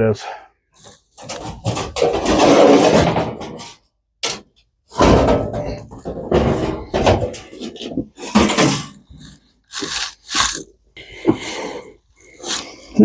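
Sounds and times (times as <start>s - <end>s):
sheet metal clunking and scraping: 1.1s - 9.3s.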